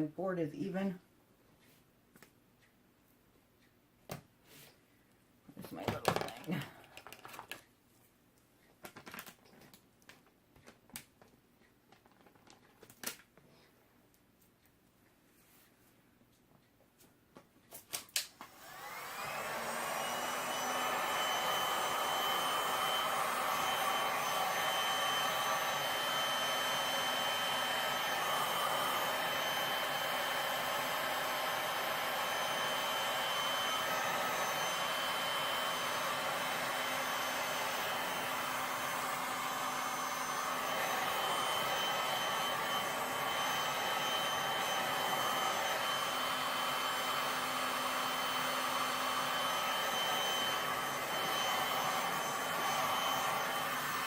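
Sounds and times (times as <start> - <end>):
hot-air blower whining: 5.6 - 6.7, 18.4 - 54.0.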